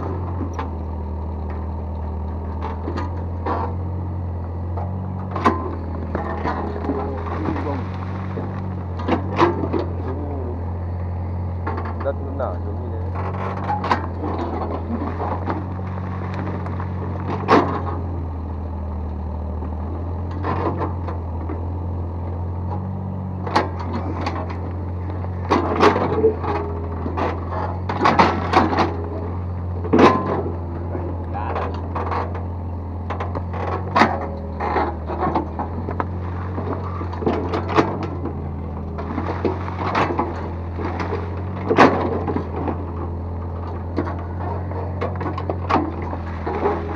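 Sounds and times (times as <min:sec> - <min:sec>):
excavator diesel engine droning: 0:00.0 - 0:46.9
bucket clanking and knocking: 0:39.0 - 0:46.9.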